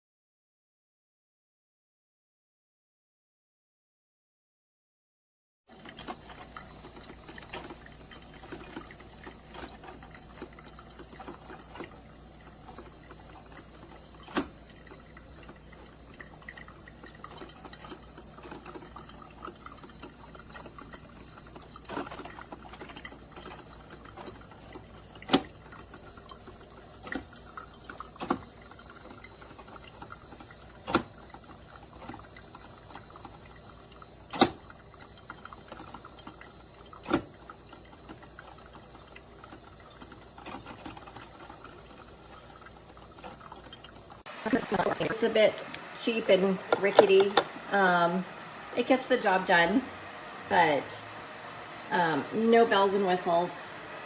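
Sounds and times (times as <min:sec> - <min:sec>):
coffee maker hissing and trickling: 0:05.7 - 0:54.0
coffee maker pops: 0:46.7 - 0:47.7.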